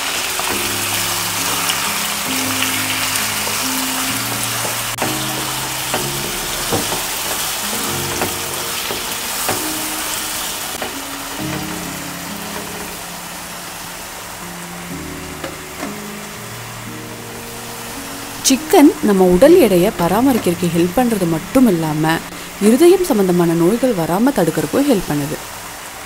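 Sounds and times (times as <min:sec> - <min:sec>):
background music: 0:00.0 - 0:25.4
chicken sizzling in oil: 0:00.0 - 0:26.0.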